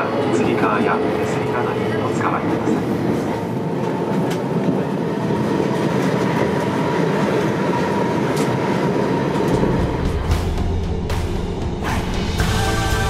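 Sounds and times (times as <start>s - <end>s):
train wheels rumbling on rails: 0.0s - 12.8s.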